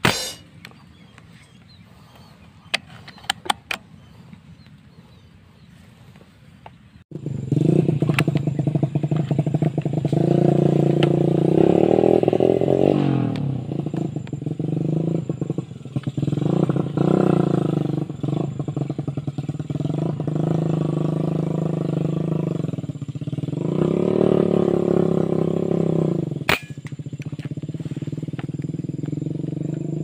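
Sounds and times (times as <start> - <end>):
motorcycle engine running: 7.1 - 30.0.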